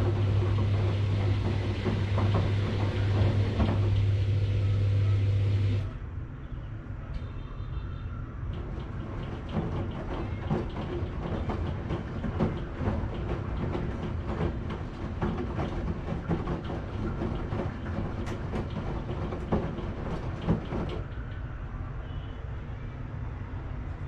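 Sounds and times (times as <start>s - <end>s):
washing machine drum knocks: 0.0s - 5.8s, 8.5s - 21.2s
washing machine rumbling: 0.0s - 6.0s, 8.5s - 21.4s.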